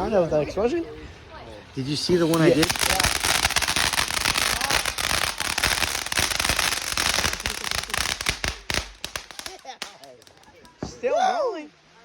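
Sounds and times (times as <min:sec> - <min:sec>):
firework crackling: 0:01.7 - 0:11.0.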